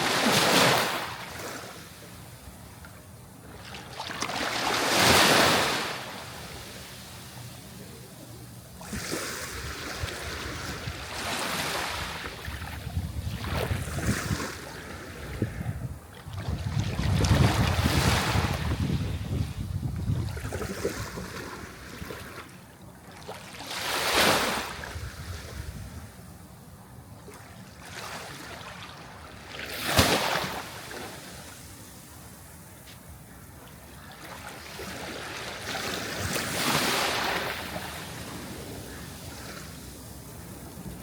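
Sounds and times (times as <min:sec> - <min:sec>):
sea waves breaking on shore: 0:00.0 - 0:02.2, 0:03.5 - 0:08.1, 0:08.7 - 0:15.7, 0:20.3 - 0:25.6, 0:27.3 - 0:32.4, 0:33.7 - 0:41.0.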